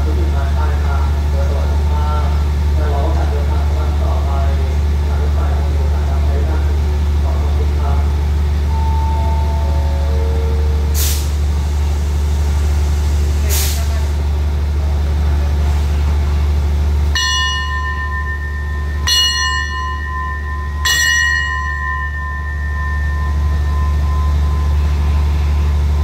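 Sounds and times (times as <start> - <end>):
diesel locomotive idling: 0.0 - 26.0
air brake hisses: 10.9 - 14.1
falling four-note chime: 17.2 - 25.1
bell struck ringing: 17.2 - 25.3.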